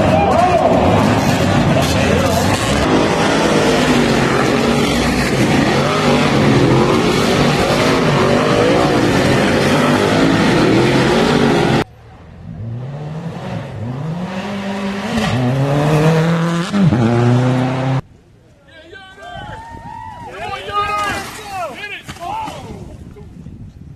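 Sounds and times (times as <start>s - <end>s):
race car accelerating through gears: 0.0s - 11.8s, 12.5s - 18.0s.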